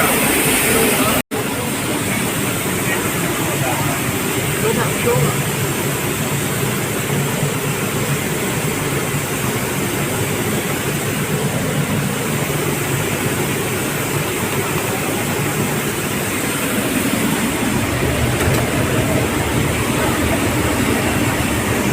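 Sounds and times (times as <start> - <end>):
machine humming: 8.6 - 21.9.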